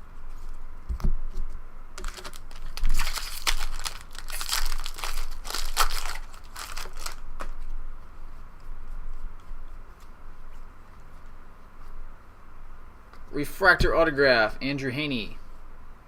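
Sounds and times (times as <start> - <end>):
foil wrapper crinkling and tearing: 2.0 - 7.7.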